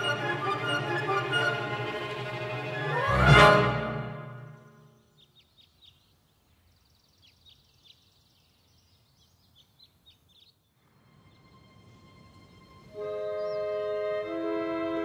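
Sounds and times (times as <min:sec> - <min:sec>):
faint birds chirping: 0:04.4 - 0:14.3
low steady rushing noise: 0:10.8 - 0:14.3.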